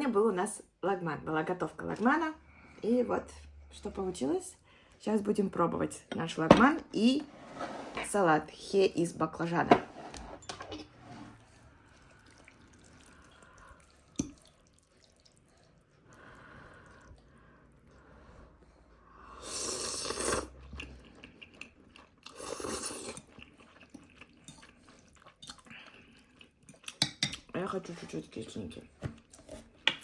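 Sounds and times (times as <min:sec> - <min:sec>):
quiet chewing: 0:20.6 - 0:27.5.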